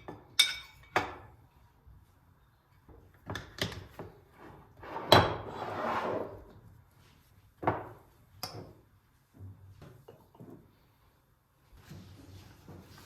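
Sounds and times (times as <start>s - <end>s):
drawer sliding: 4.8s - 6.4s.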